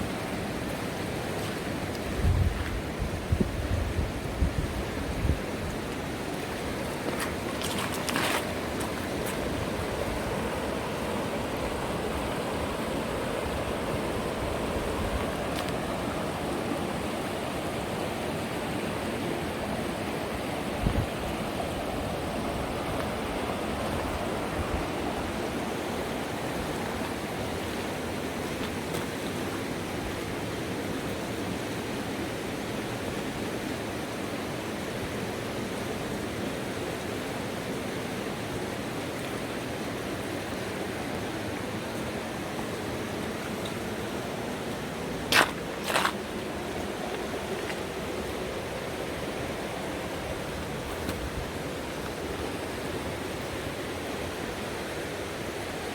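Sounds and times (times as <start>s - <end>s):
river rushing over rapids: 0.0s - 55.9s.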